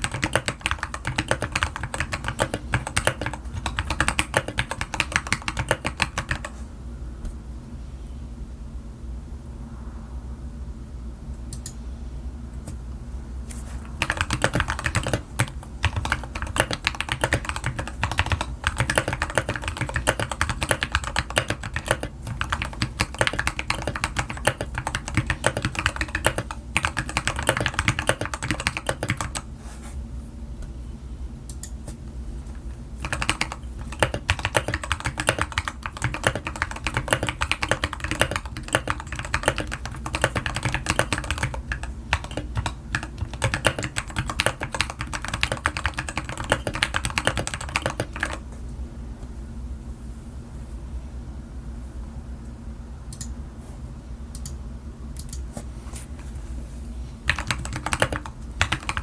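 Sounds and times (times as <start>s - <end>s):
fast typing on mechanical keyboard: 0.0s - 6.6s, 13.8s - 29.5s, 33.0s - 48.4s, 57.2s - 59.0s.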